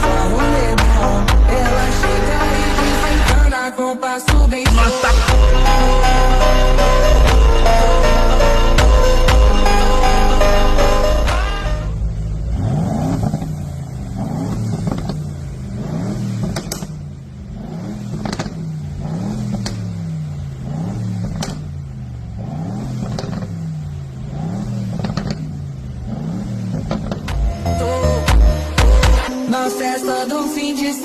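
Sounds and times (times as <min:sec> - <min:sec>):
car engine revving: 0:00.0 - 0:03.6, 0:04.8 - 0:29.4
exhaust cracks: 0:04.5 - 0:29.3.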